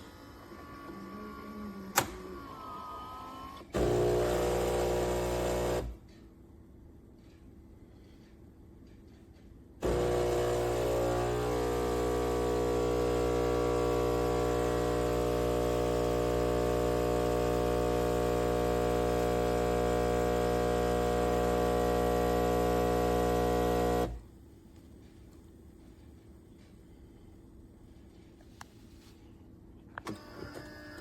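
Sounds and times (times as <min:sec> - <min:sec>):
espresso machine buzzing hum: 0:03.8 - 0:06.0, 0:09.8 - 0:24.2.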